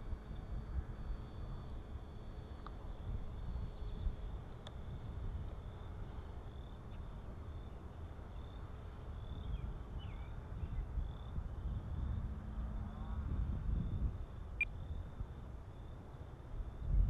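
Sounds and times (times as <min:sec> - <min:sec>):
wind buffeting microphone: 0:09.4 - 0:12.4, 0:13.2 - 0:14.5.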